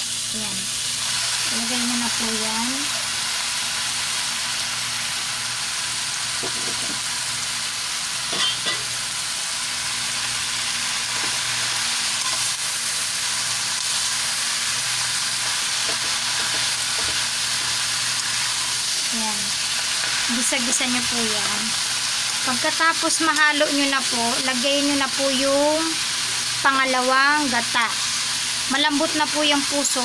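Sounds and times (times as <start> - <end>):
food sizzling in hot oil: 0.0 - 30.0
spatula knocking and scraping pan: 6.4 - 7.0, 15.8 - 17.7.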